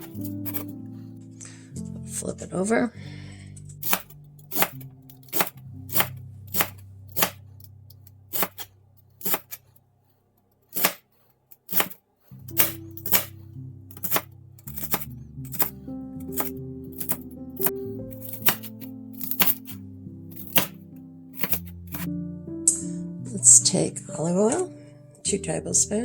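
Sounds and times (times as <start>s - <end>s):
knife slicing cabbage: 0.0s - 0.7s, 3.8s - 7.4s, 8.3s - 9.6s, 10.7s - 20.8s, 21.4s - 22.1s.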